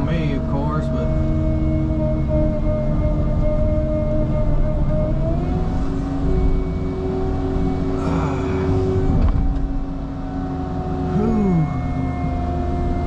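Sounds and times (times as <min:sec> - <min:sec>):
falling whine: 0:00.0 - 0:13.0
excavator diesel engine running: 0:05.1 - 0:13.0.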